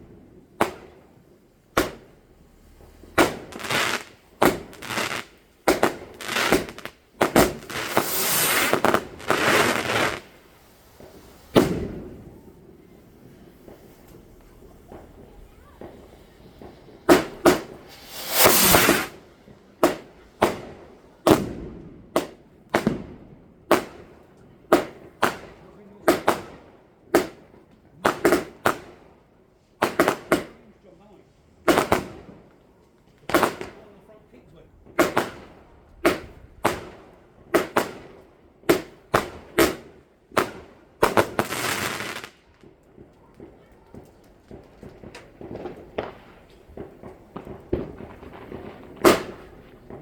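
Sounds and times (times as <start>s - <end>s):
fireworks bangs: 0.0s - 24.2s, 31.6s - 32.5s, 33.3s - 33.9s, 34.8s - 50.0s
firework hissing rush: 1.4s - 19.3s, 41.2s - 42.4s.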